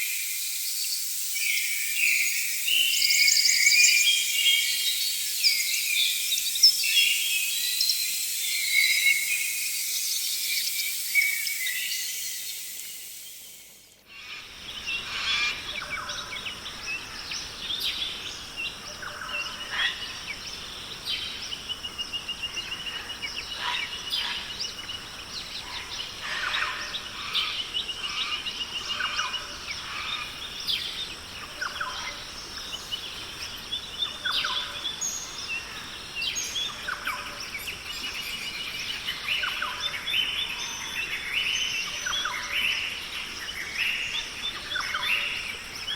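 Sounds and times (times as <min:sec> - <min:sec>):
loud high insect buzz: 0:00.0 - 0:15.6
steady high insect hum: 0:00.0 - 0:45.9
birds calling and chirping: 0:01.3 - 0:45.9.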